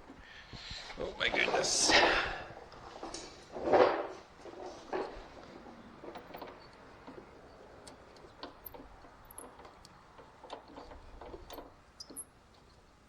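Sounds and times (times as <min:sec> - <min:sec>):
metal washers clinking: 0:06.0 - 0:12.4.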